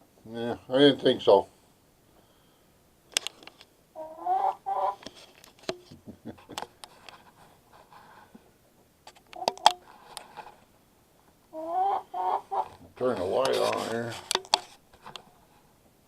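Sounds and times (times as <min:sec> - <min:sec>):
hens clucking: 0:04.0 - 0:05.1, 0:09.4 - 0:10.6, 0:11.5 - 0:14.1
sharp clicks and knocks: 0:09.0 - 0:10.3, 0:13.4 - 0:15.3.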